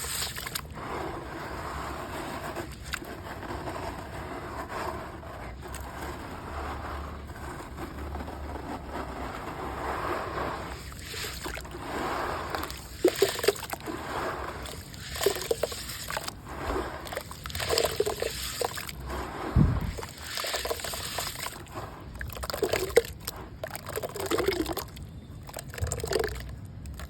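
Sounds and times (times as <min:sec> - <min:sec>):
mud sloshing in water: 0:00.0 - 0:00.8, 0:10.4 - 0:27.0.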